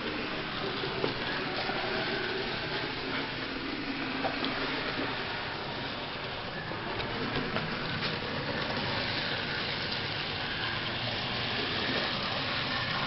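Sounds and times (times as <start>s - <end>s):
model train motor whirring: 0.0s - 13.0s.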